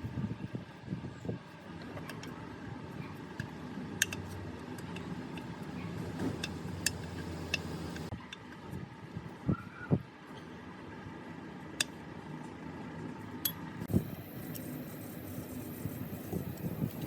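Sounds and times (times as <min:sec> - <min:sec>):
machine humming: 0:04.9 - 0:08.1.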